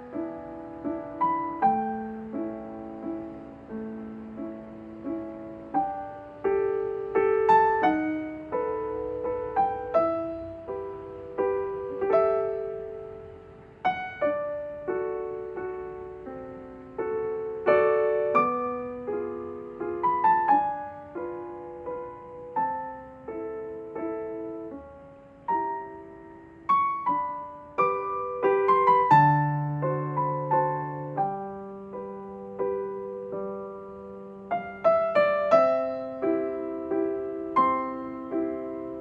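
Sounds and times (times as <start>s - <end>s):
gentle piano music: 0.0s - 39.0s.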